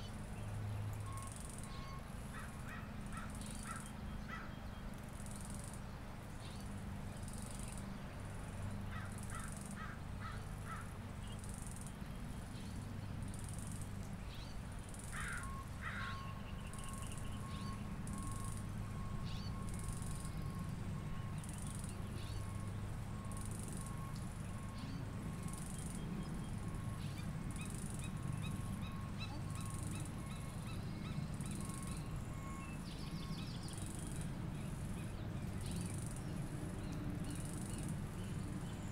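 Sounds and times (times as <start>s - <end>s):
birdsong: 0.0s - 38.9s
long steady tone: 0.0s - 38.9s
steady low hum: 0.0s - 38.9s
crow-like caws: 2.3s - 4.6s, 8.9s - 11.0s, 15.1s - 16.3s.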